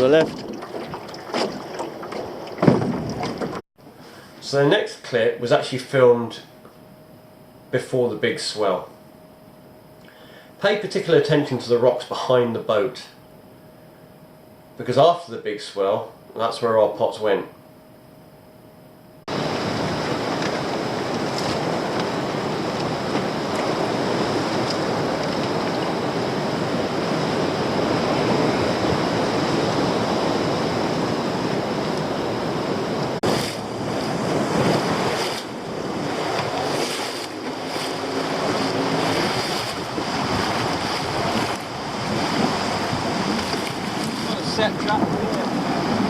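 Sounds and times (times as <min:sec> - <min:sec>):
surf breaking against rocks: 0:19.3 - 0:46.0
wind buffeting microphone: 0:19.3 - 0:46.0.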